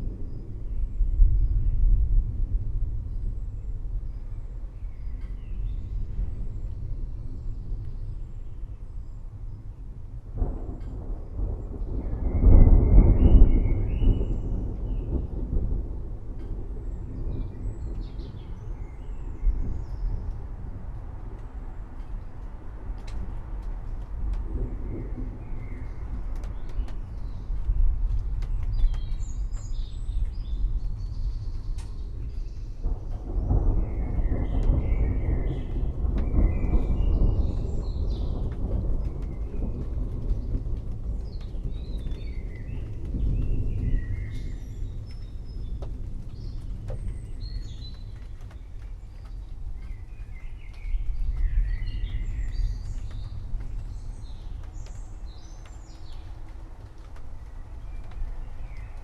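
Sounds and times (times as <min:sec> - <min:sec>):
distant thunder rumble: 0:00.0 - 0:59.0
rain-like hiss: 0:00.0 - 0:59.0
birds chirping: 0:28.4 - 0:59.0.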